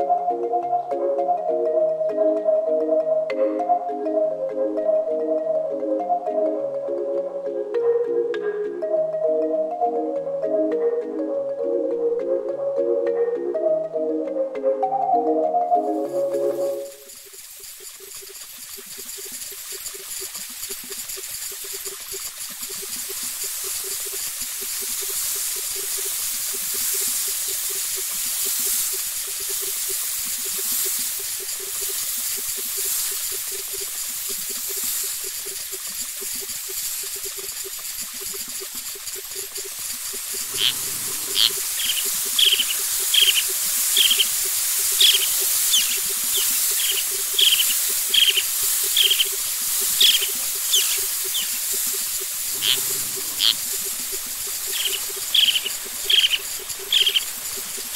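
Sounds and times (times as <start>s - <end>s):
high insect-like hiss: 15.8s - 57.9s
bird chirping sharply: 40.5s - 51.6s, 52.6s - 53.6s, 54.7s - 57.3s.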